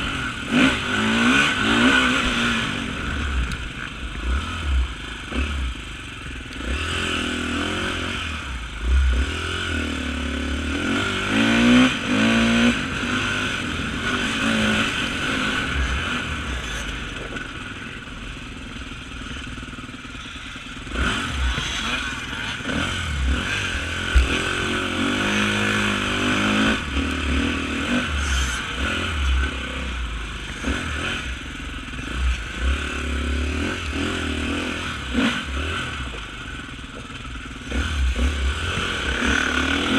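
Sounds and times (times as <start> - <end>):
motorcycle engine revving: 0.0 - 39.9
low thuds: 24.0 - 24.4.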